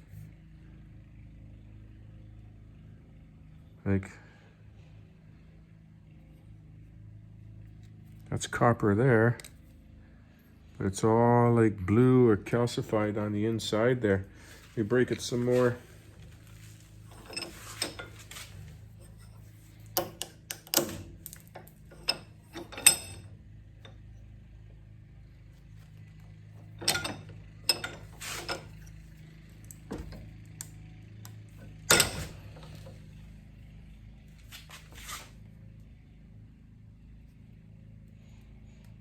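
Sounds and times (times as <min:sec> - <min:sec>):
steady low hum: 0:00.0 - 0:39.0
hand tools clicking and cracking: 0:26.8 - 0:28.8.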